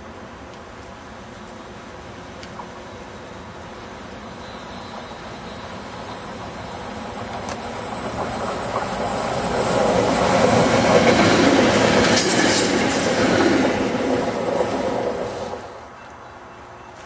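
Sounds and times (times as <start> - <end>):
electric train passing: 0.0 - 16.0.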